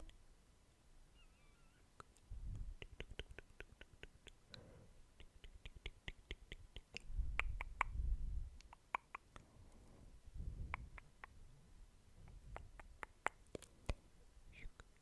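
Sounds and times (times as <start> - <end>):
wet mouth clicks and smacks: 2.8 - 4.6, 5.2 - 8.0, 8.6 - 9.4, 10.6 - 11.4, 12.2 - 14.0
low microphone rumble: 7.1 - 8.6, 10.0 - 11.6.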